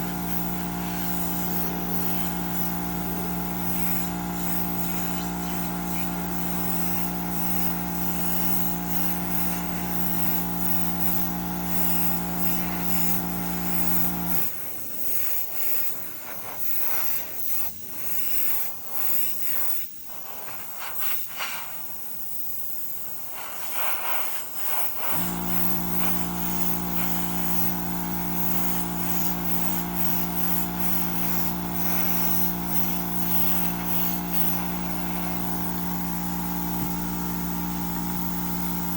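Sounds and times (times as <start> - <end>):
air compressor motor hum: 0.0 - 14.5, 25.0 - 38.9
airbrush hissing: 0.0 - 38.9.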